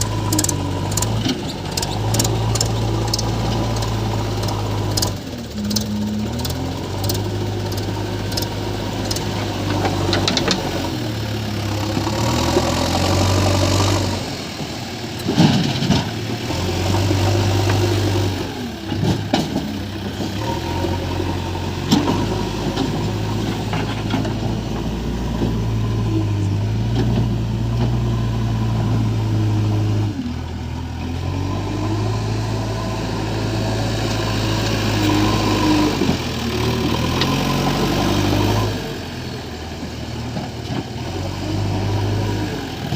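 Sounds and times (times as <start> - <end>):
diesel engine revving: 0.0 - 42.9.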